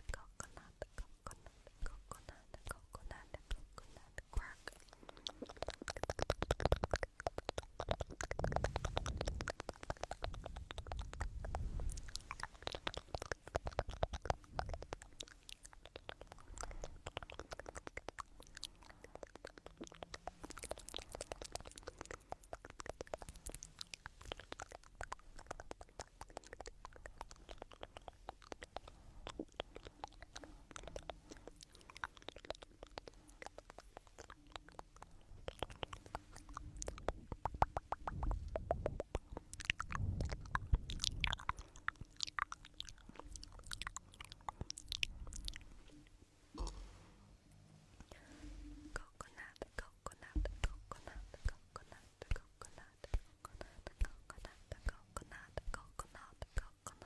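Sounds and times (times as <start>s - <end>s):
fine crackling and clicking: 0.0s - 46.7s.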